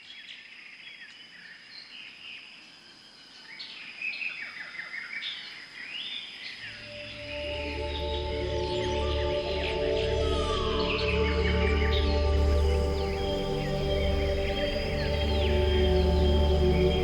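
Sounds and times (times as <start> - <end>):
soft sustained music: 6.6 - 17.0
birds chirping and calling: 11.9 - 17.0
steady high-pitched tone: 12.4 - 17.0.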